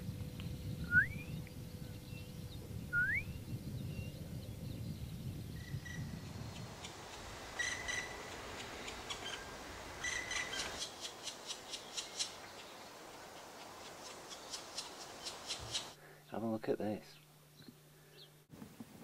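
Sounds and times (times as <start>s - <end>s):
distant bird whistling upward: 0.8s - 1.4s, 2.9s - 3.5s, 7.5s - 10.9s
harsh repeated bird calls: 5.6s - 16.0s.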